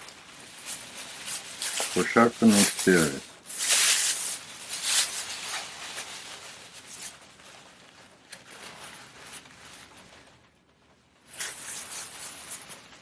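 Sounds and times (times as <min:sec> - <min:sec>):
parcel packaging rustling: 0:00.0 - 0:10.6, 0:11.2 - 0:13.0.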